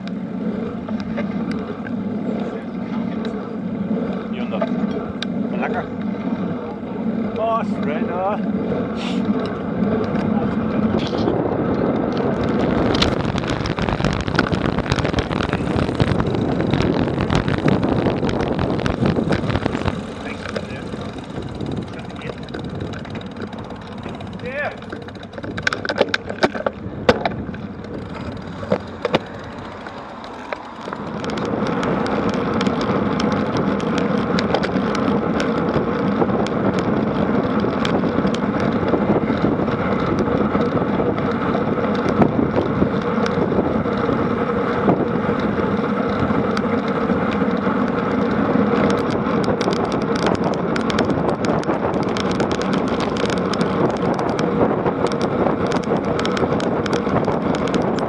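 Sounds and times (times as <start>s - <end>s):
tyres rolling on road: 0.0s - 58.0s
wind buffeting microphone: 0.0s - 58.0s.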